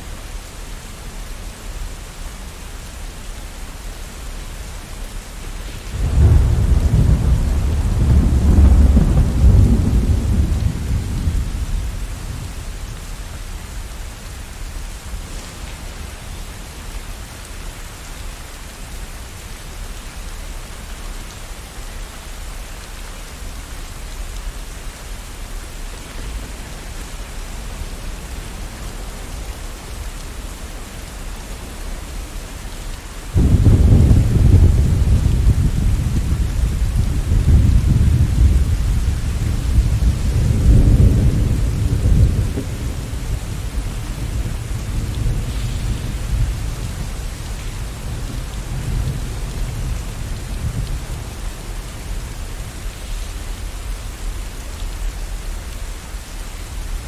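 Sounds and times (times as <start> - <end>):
steady rain: 0.0 - 57.0
thunder rumbling: 5.9 - 13.2, 33.3 - 53.3.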